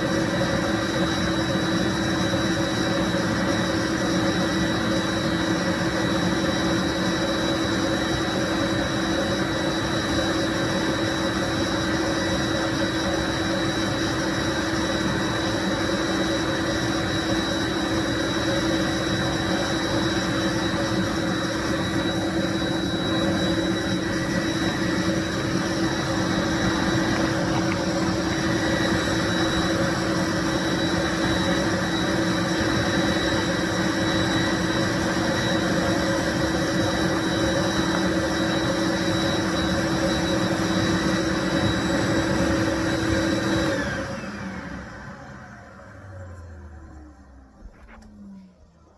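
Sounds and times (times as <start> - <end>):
steady hum: 0.0 - 43.7
faint high whine: 0.0 - 48.9
cleaning machine motor rushing: 9.6 - 47.6.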